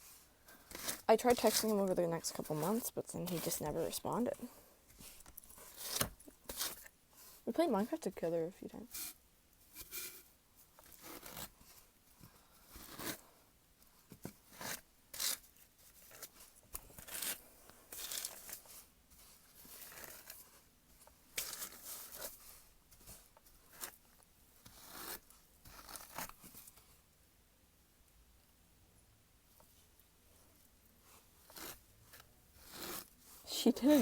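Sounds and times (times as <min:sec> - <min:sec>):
hairbrush swishing through wig: 0:32.8 - 0:34.0.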